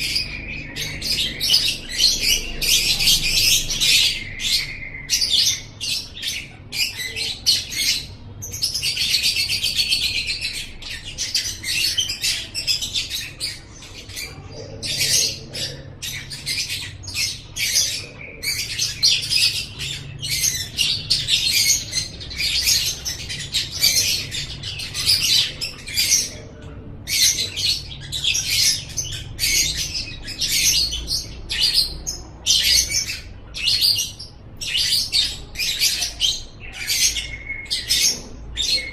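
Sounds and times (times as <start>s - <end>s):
lovebird chirping: 0.0s - 26.4s.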